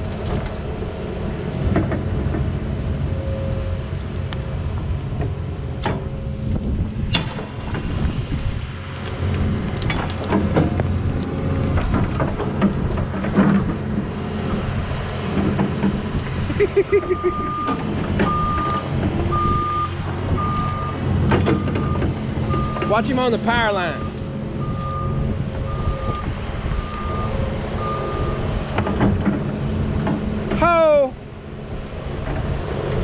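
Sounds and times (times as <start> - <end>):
diesel engine running: 0.0 - 33.0
wind on the microphone: 6.0 - 8.8, 24.6 - 28.7
knocks and cracks: 9.0 - 14.1.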